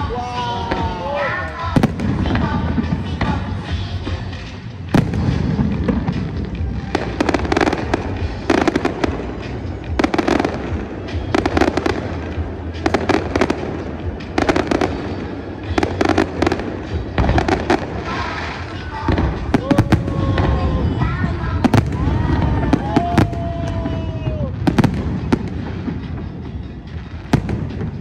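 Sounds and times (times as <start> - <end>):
fireworks crackling pops: 0.0 - 28.0.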